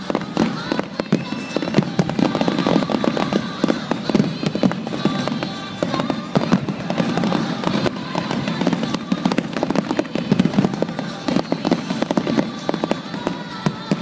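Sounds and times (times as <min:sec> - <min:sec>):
fireworks exploding: 0:00.0 - 0:14.0.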